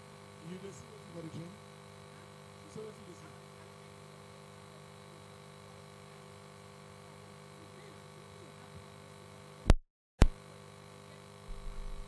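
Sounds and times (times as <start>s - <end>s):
steady electrical hum: 11.3s - 12.0s.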